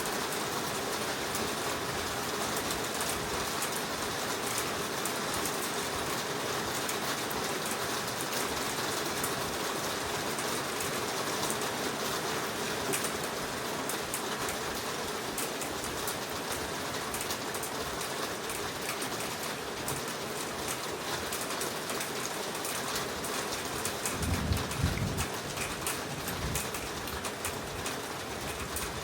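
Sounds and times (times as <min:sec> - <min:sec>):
heavy rain falling: 0:00.0 - 0:29.0.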